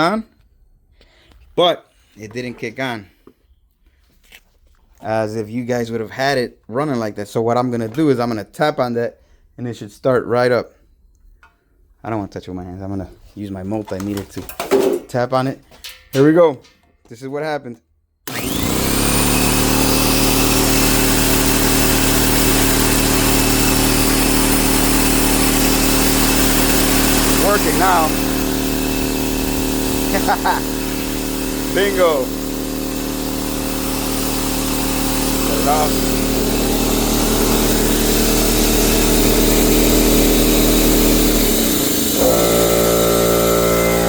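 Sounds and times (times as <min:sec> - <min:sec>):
air compressor running: 0:18.3 - 0:44.0
motor humming: 0:18.3 - 0:44.0.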